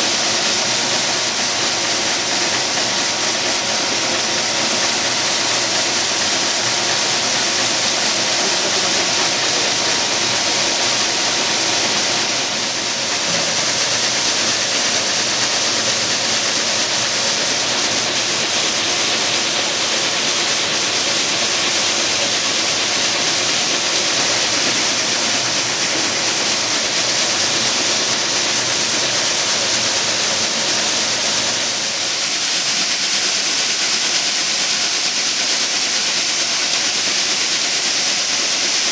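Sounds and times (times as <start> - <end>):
machine hum: 0.0 - 34.4.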